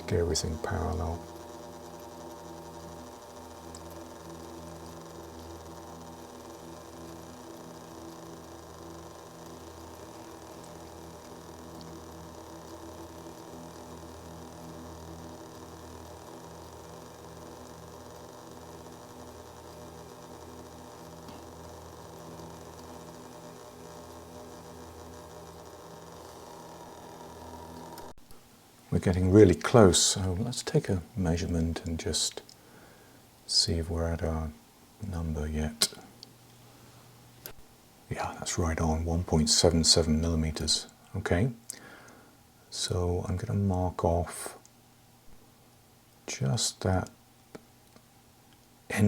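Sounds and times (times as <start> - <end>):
lathe motor humming: 0.0 - 28.2.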